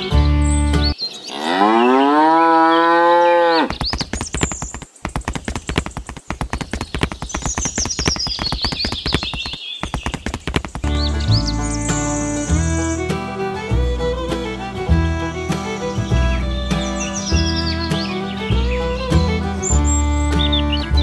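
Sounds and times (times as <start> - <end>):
cow mooing: 1.3 - 3.7
sharp clicks: 3.7 - 11.0.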